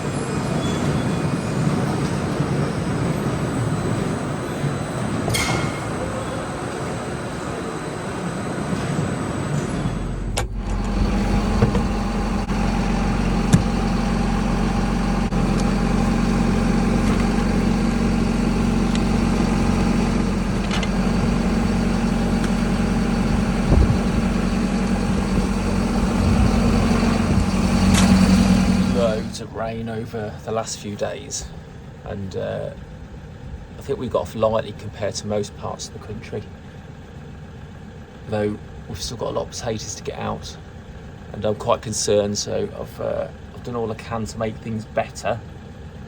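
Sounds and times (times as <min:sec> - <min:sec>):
steady engine drone: 0:00.0 - 0:46.0
rough mechanical rattle: 0:08.8 - 0:30.4.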